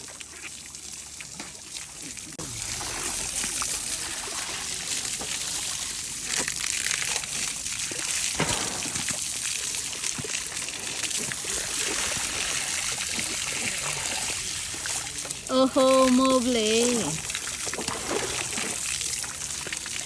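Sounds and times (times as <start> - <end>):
water running: 0.0 - 20.0
short knocks and splashes: 7.9 - 15.4, 17.5 - 18.9.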